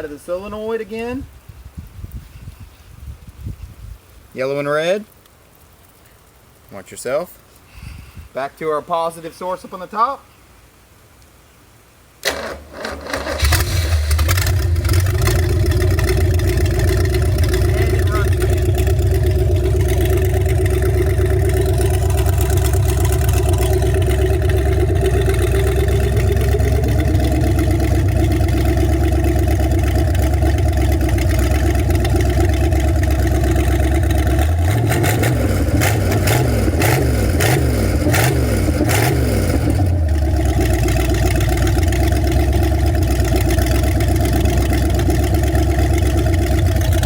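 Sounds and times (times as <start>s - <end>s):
boat engine running: 12.3s - 47.0s.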